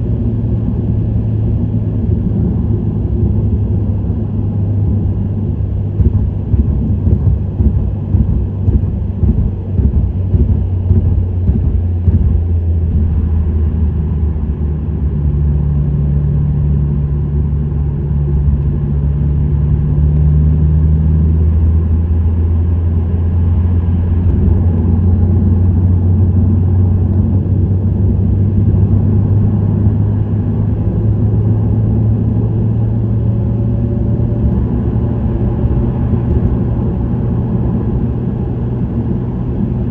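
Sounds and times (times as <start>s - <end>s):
tyre and road noise: 0.0s - 15.8s
car exhaust drone: 0.0s - 39.9s.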